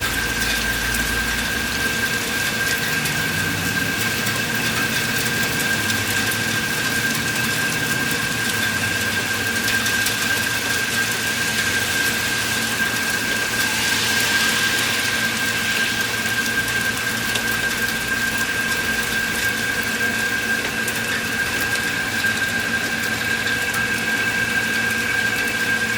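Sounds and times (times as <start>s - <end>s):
high-pitched whine: 0.0s - 25.9s
steady rain falling: 0.0s - 25.9s.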